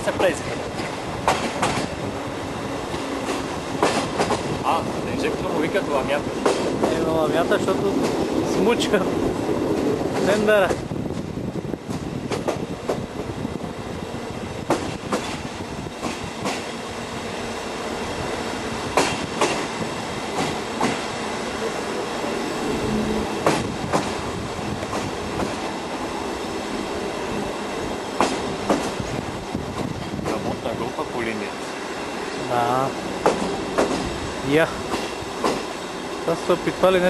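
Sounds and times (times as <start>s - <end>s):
wheels clicking over rail joints: 0.0s - 2.0s, 2.9s - 4.6s, 18.9s - 21.2s, 28.2s - 30.6s
steam train rumbling: 0.0s - 37.0s.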